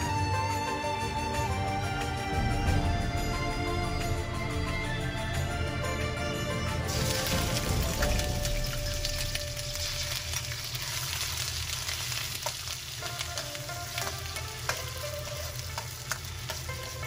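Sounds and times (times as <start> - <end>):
food sizzling in a pan: 6.9 - 17.0
utensil clicking against pan: 11.8 - 17.0.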